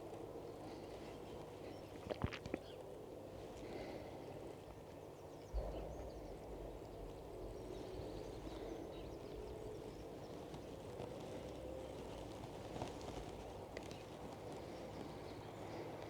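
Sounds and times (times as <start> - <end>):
soft low bump: 5.5 - 9.5
steady low rumble: 5.5 - 11.9.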